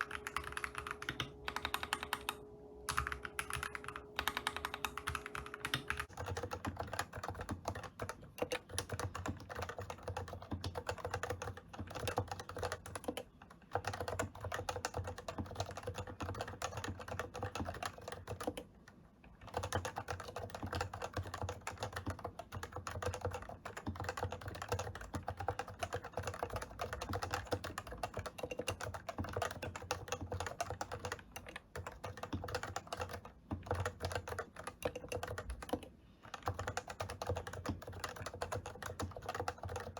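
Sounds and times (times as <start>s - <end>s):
fast keyboard typing: 0.0s - 18.8s, 19.4s - 39.9s.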